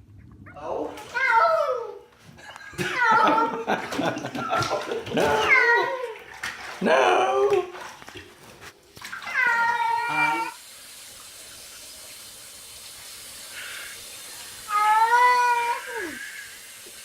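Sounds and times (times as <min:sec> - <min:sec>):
cat meowing: 0:09.2 - 0:10.6, 0:14.7 - 0:16.4
faint steady hiss: 0:09.9 - 0:17.0.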